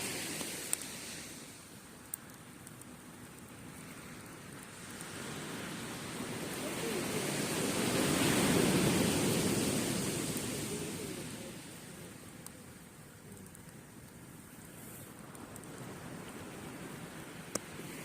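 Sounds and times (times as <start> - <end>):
surf waves rushing: 0.0 - 1.9, 3.6 - 12.6, 14.7 - 18.0.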